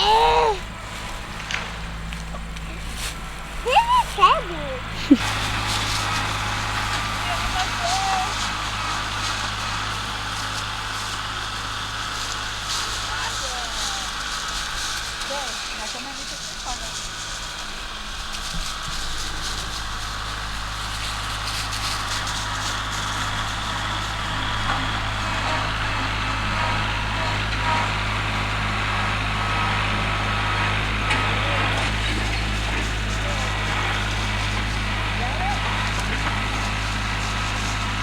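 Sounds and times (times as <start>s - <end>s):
tractor engine running steadily: 0.0s - 38.0s.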